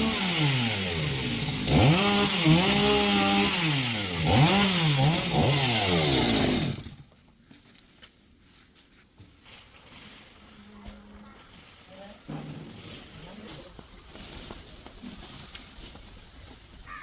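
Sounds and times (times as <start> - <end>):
chainsaw cutting wood: 0.0 - 7.1.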